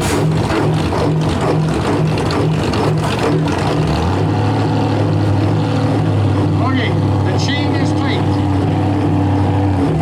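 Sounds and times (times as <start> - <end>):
diesel engine pulsing: 0.0 - 10.0.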